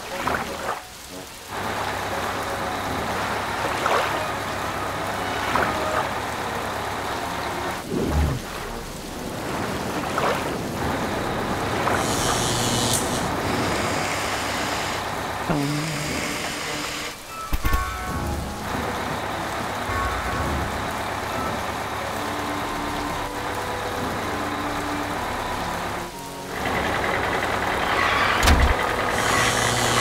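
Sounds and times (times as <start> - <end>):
heavy rain: 0.0 - 30.0
splashes through flood water: 0.0 - 30.0.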